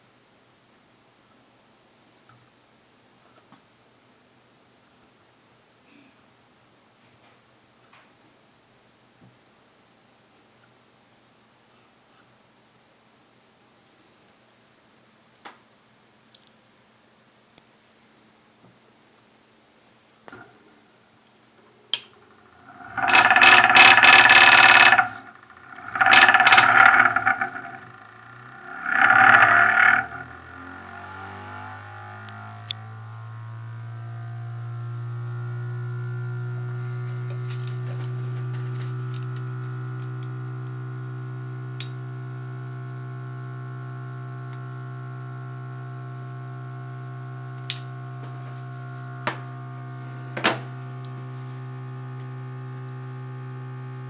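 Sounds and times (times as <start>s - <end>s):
generator rotor humming: 22.1s - 54.0s.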